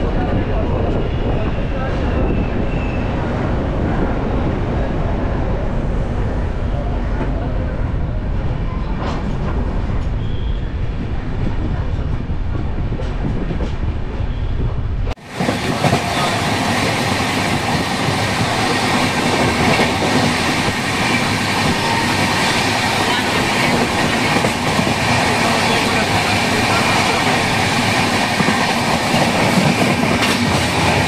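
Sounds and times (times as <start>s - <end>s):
hissing rush of train: 0.0s - 31.0s
train rumbling on rails: 0.0s - 31.0s.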